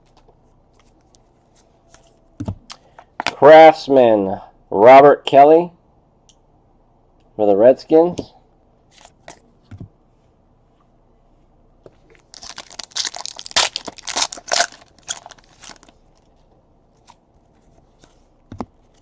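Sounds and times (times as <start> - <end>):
cards rustling: 12.1 - 19.0
plastic wrapper tearing and crinkling: 12.2 - 16.3.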